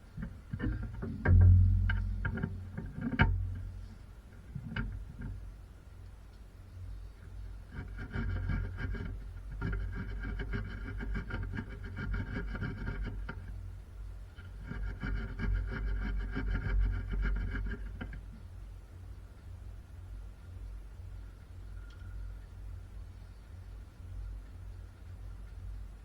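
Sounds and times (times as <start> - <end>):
rapid clatter: 0.0 - 5.5, 7.7 - 18.4.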